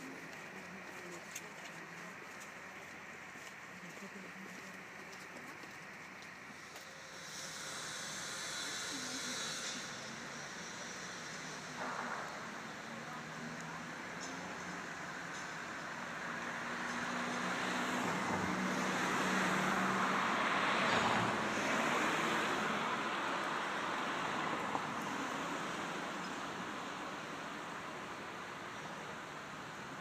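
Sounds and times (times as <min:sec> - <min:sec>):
motor vehicle passing by: 0:15.4 - 0:26.3.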